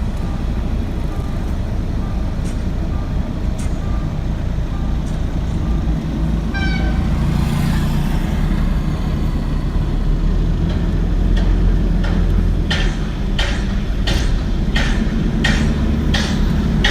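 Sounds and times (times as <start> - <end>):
train rumbling past: 0.0 - 16.9
train horn toot: 6.5 - 7.2
sharp clacks: 10.6 - 16.9.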